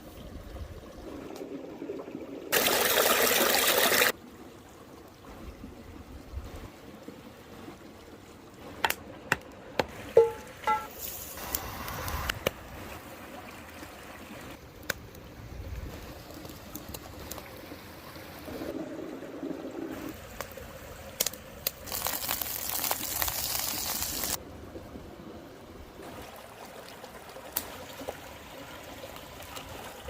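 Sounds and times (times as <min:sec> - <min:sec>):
liquid trickling and pouring: 0:00.0 - 0:08.8, 0:09.9 - 0:14.6, 0:15.7 - 0:24.4.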